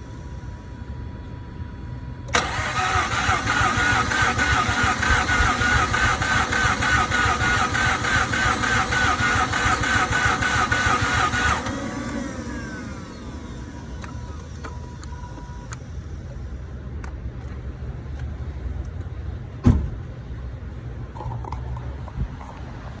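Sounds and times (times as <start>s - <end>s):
starter cranking engine: 2.3s - 14.7s
sharp thump: 19.6s - 20.0s.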